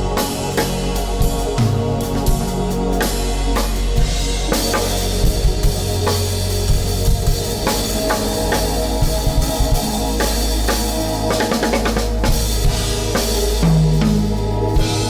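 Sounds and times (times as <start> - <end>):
deep bass tones: 0.0 - 15.0
droning chords: 0.0 - 15.0.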